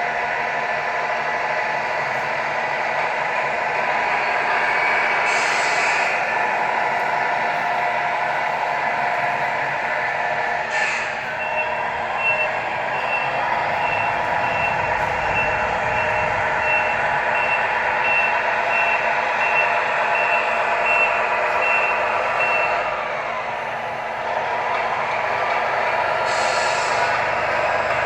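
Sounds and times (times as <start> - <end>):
engine running noise: 0.0 - 28.0
truck reversing beeper: 3.7 - 24.8, 25.4 - 28.0
short air hiss: 5.2 - 6.2, 10.7 - 11.2, 26.3 - 27.2.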